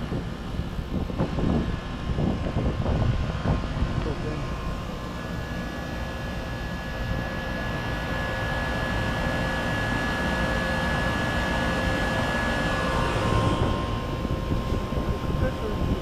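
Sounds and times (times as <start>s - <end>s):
compressor humming: 0.0s - 16.0s.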